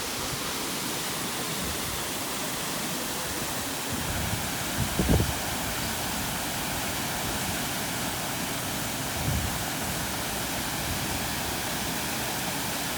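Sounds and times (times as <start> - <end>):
rushing water: 0.0 - 12.9.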